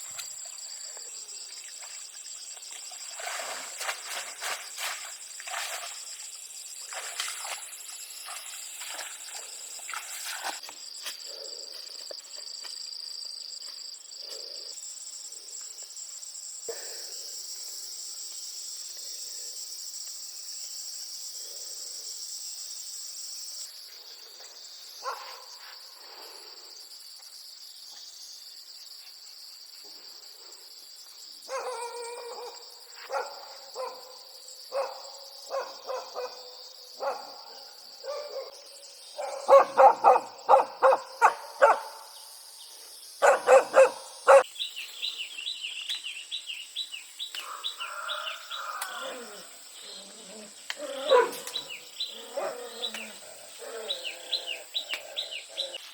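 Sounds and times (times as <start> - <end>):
insects droning: 0.0 - 55.9
dog barking: 25.0 - 25.5, 31.5 - 38.5, 39.2 - 42.1, 43.2 - 44.4, 50.9 - 52.8
birds chirping: 43.2 - 55.8.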